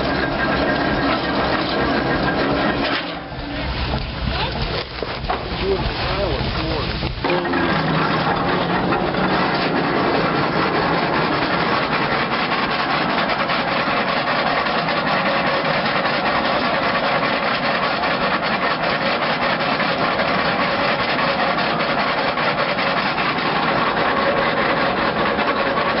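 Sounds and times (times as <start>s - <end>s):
mill knife scraping log: 0.0s - 26.0s.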